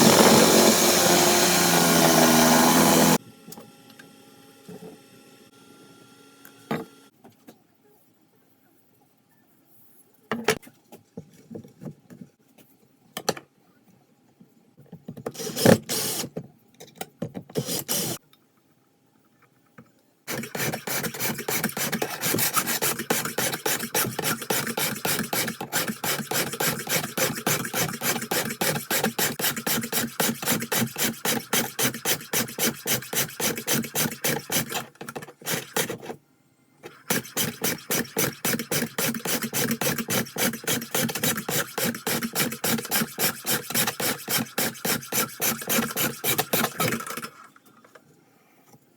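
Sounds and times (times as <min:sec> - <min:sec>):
hand file on steel: 0:00.0 - 0:03.2, 0:20.3 - 0:36.2, 0:37.1 - 0:47.2.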